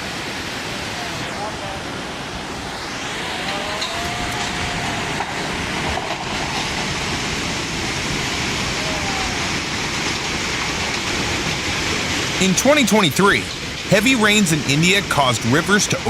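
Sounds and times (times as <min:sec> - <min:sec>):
fast-flowing floodwater rushing: 0:00.0 - 0:16.0
faint voices calling: 0:12.4 - 0:16.0.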